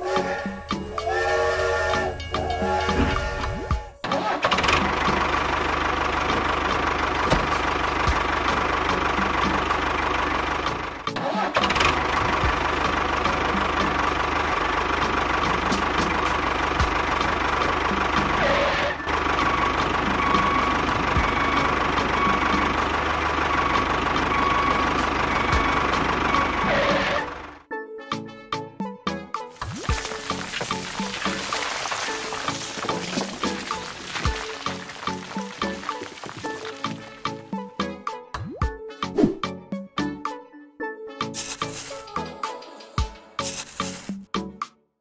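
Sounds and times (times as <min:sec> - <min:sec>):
engine running steadily: 0:00.2 - 0:27.7.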